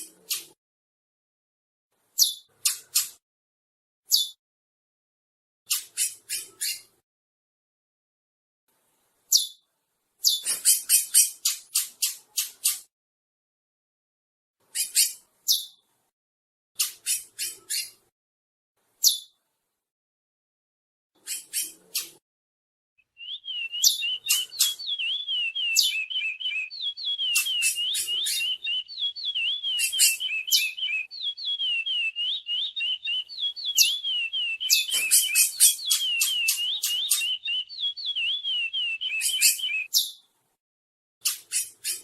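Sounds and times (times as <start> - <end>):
finch singing whistled notes: 23.0 - 40.2
sharp high bird chips: 23.5 - 40.1.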